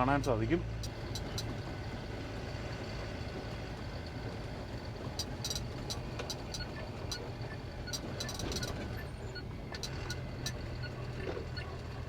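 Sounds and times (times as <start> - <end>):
diesel truck engine rumble: 0.0 - 12.0
light clicks and rattles: 0.1 - 1.8, 4.7 - 9.0.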